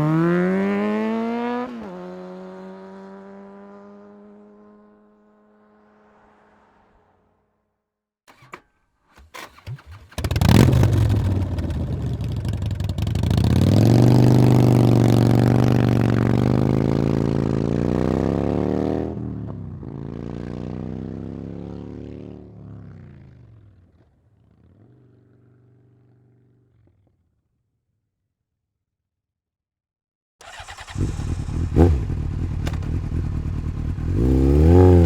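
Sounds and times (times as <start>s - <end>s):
motorcycle engine revving: 9.2s - 26.4s, 30.4s - 35.0s.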